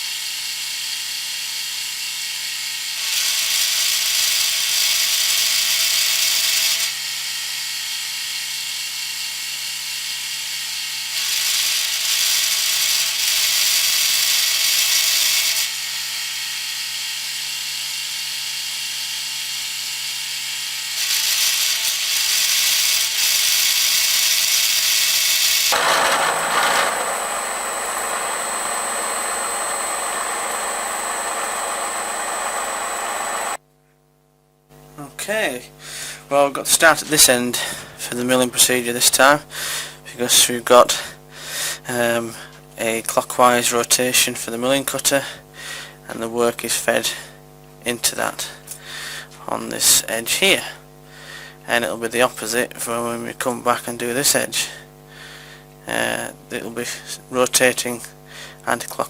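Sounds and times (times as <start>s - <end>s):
milling cutter cutting steel: 21.0s - 33.6s
milling spindle running: 21.0s - 33.6s
high machine whine: 25.7s - 33.6s.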